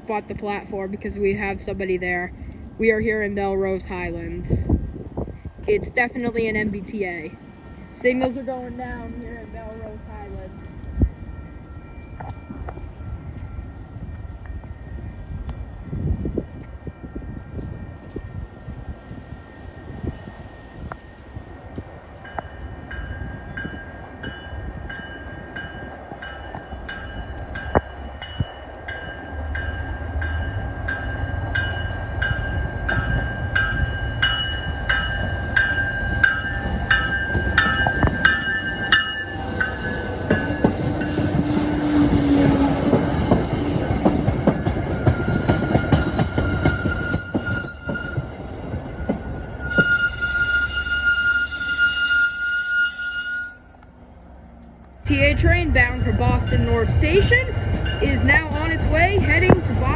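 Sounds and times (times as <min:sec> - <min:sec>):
diesel locomotive rumbling: 0:00.0 - 0:59.9
crossing bell ringing: 0:05.2 - 0:54.5
train wheels clattering on rails: 0:19.7 - 0:52.5
high wheel squeal: 0:38.3 - 0:54.5.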